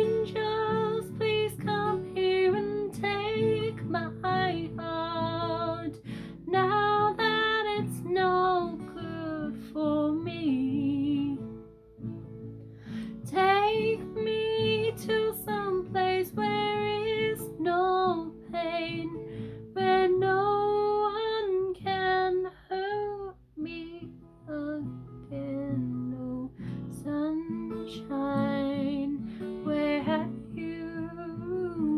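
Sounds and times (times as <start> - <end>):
woman singing a slow ballad: 0.0 - 11.6, 13.2 - 31.9
acoustic guitar: 0.0 - 31.9.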